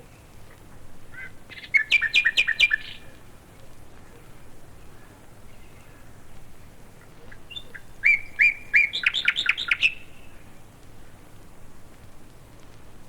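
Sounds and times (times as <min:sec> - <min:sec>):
faint bird chirps: 0:01.1 - 0:03.2, 0:07.1 - 0:10.5
bird singing whistled phrase: 0:07.5 - 0:10.1.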